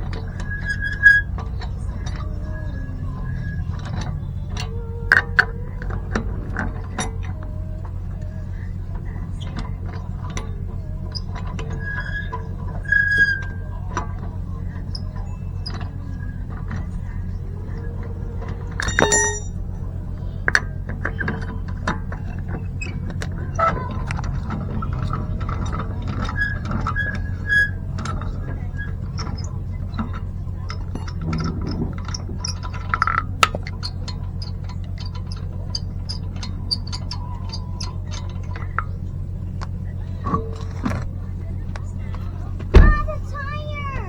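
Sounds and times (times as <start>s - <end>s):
steady low hum: 0.0s - 44.0s
hand tools clicking and knocking: 18.4s - 19.6s.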